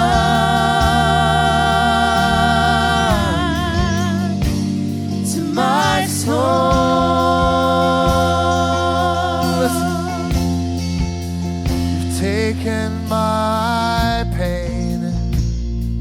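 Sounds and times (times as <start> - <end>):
person singing with vibrato: 0.0 - 10.9
band with bass and drums: 0.0 - 16.0.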